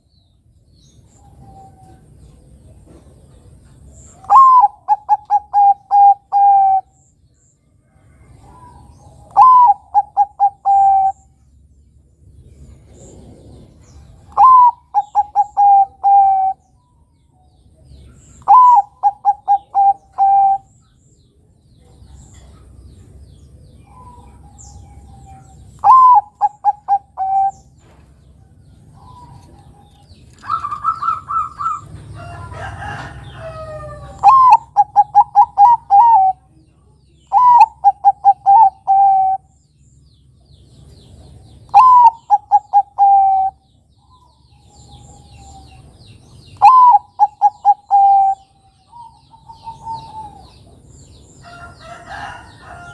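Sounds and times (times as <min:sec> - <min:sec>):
dove cooing: 0:04.1 - 0:07.0, 0:08.3 - 0:11.3, 0:12.9 - 0:16.6, 0:18.4 - 0:20.8, 0:23.8 - 0:28.0, 0:28.9 - 0:36.5, 0:37.3 - 0:39.5, 0:41.7 - 0:43.6, 0:46.6 - 0:50.8.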